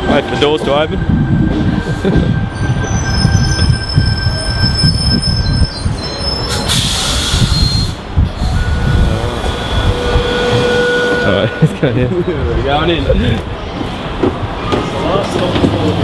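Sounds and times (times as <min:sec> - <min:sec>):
train rumble: 0:00.0 - 0:16.0
wheels and brakes squealing: 0:02.5 - 0:11.7
air hiss: 0:06.5 - 0:09.7.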